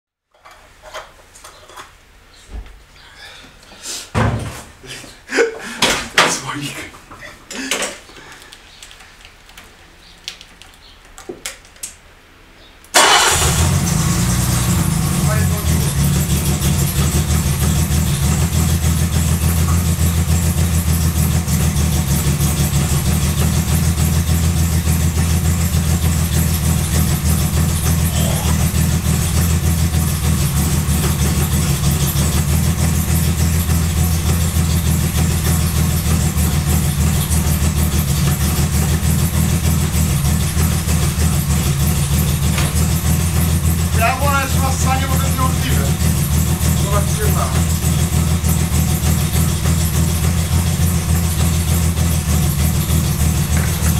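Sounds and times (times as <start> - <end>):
car engine starting and running: 12.9 - 53.9.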